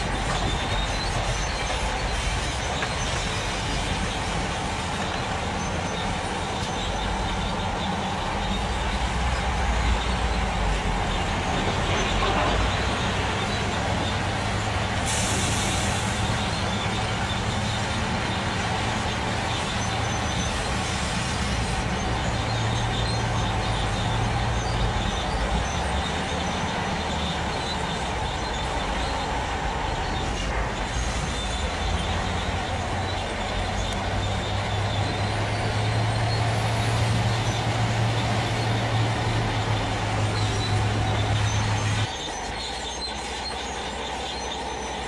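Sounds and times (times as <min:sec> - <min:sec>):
truck diesel engine running: 0:00.0 - 0:45.0
air hiss: 0:13.0 - 0:25.0.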